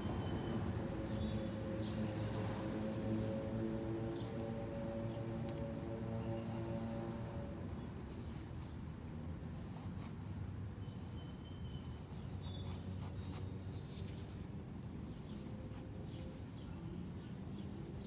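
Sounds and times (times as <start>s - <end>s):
pen scratching on paper: 0.1s - 14.4s.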